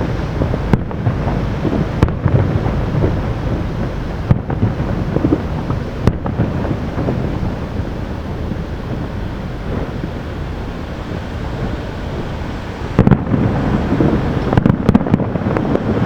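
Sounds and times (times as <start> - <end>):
low rumble of distant fireworks: 0.0 - 16.0
firework shell bursts: 11.5 - 16.0.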